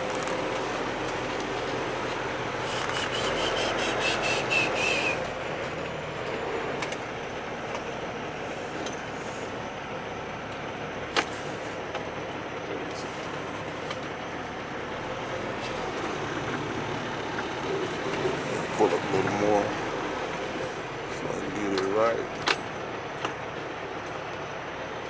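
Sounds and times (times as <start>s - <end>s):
truck engine running: 0.0s - 25.0s.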